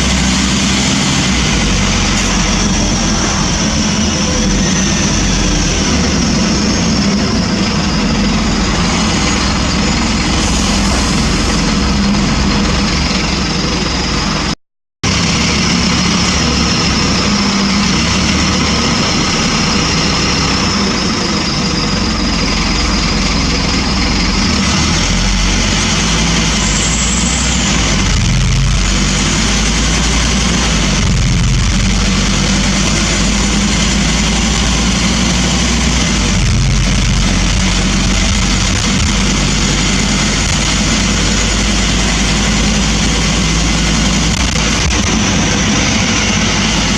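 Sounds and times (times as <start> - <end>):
bus engine drone: 0.0 - 46.9.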